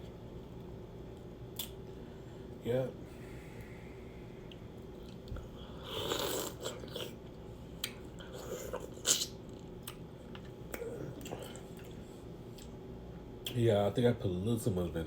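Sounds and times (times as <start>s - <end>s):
person chewing food: 4.4s - 12.8s.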